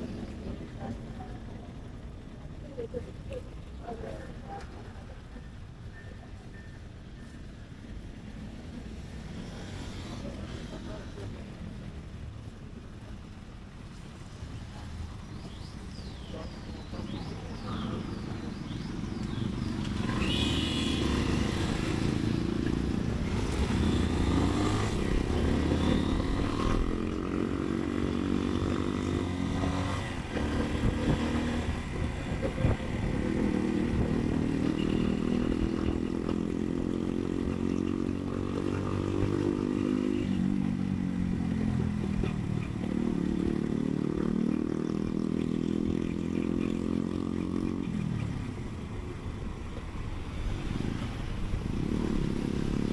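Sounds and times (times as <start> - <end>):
motorcycle engine accelerating: 17.9 - 48.6.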